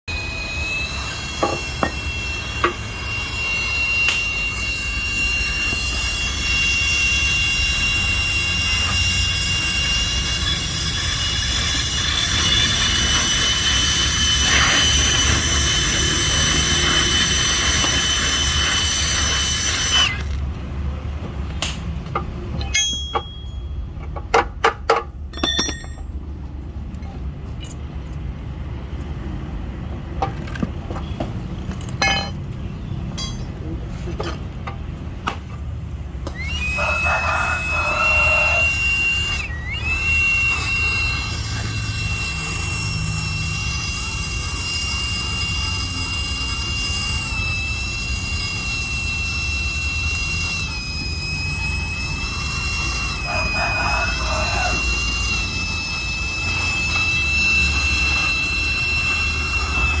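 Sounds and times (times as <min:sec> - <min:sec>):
high-pitched mechanical whine: 0:00.1 - 0:24.2, 0:30.2 - 1:00.0
sharp metallic clinks: 0:01.0 - 0:20.4, 0:22.5 - 0:24.0, 0:25.3 - 0:26.2, 0:31.7 - 0:34.5
hiss: 0:46.2 - 1:00.0.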